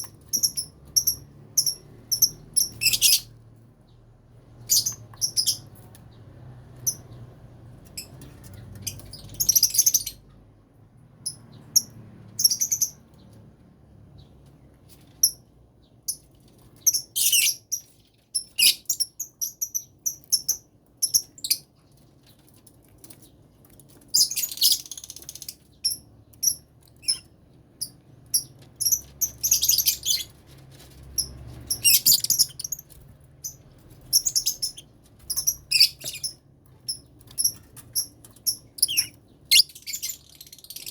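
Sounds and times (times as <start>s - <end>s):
lovebirds chirping and screeching: 0.0s - 4.0s, 4.6s - 6.2s, 7.9s - 10.2s, 16.0s - 22.4s, 23.1s - 40.9s.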